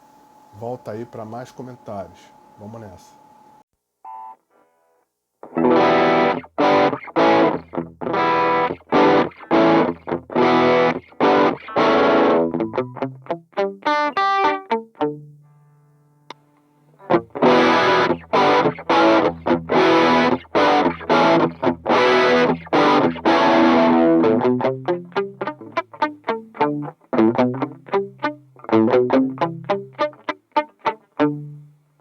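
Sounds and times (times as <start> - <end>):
distorted electric guitar: 5.4 - 15.2, 16.3 - 31.8.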